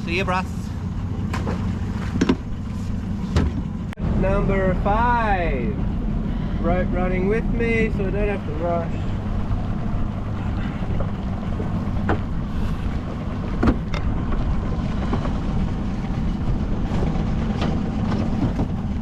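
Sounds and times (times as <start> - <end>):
outboard motor idling: 0.0 - 19.0
sharp knocks on boat: 1.2 - 2.6, 3.2 - 3.8, 11.0 - 14.4, 16.8 - 19.0.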